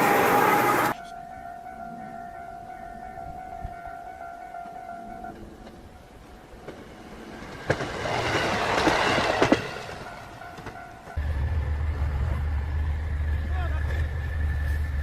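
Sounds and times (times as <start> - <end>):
low engine drone: 0.0 - 1.0, 11.2 - 15.0
heavy vehicle passing: 11.2 - 15.0.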